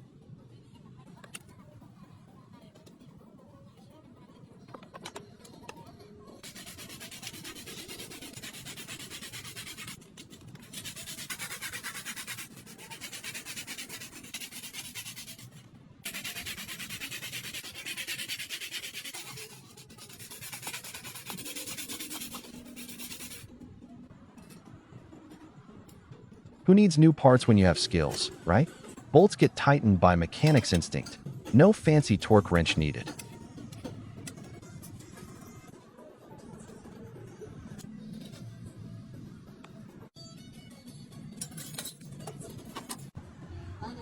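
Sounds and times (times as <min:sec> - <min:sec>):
sandpaper rubbing on metal: 0:06.4 - 0:23.5, 0:30.4 - 0:31.3.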